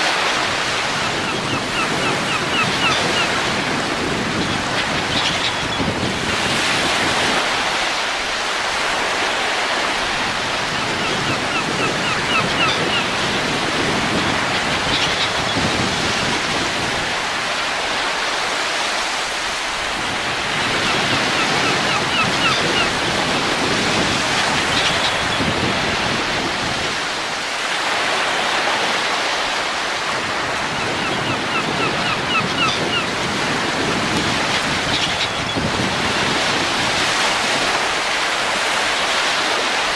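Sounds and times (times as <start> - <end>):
rushing wind: 0.0 - 39.9.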